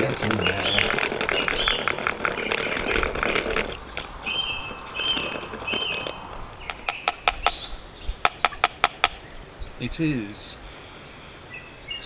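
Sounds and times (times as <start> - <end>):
sharp clicks: 0.0 - 9.2
birds calling: 0.0 - 12.0.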